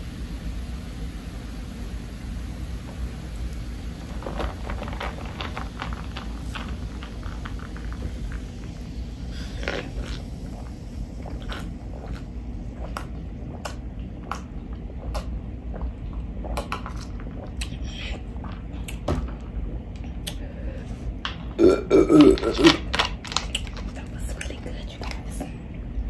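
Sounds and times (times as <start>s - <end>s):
swallowing and mouth clicks: 9.6s - 19.1s, 20.0s - 20.4s
plastic cup set on table: 21.2s - 25.2s
low hum: 24.0s - 26.0s.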